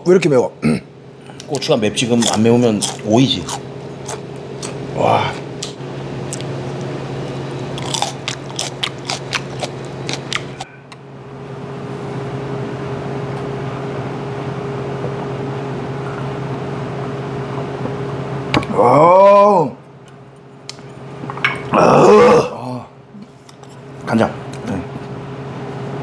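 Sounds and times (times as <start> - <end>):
steady low hum: 0.0 - 26.0
chili pepper being crunched: 5.6 - 10.6.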